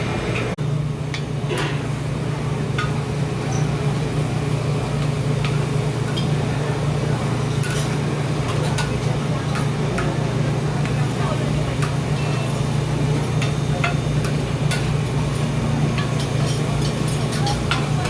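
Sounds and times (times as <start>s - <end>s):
metal utensils clinking: 15.9s - 18.0s.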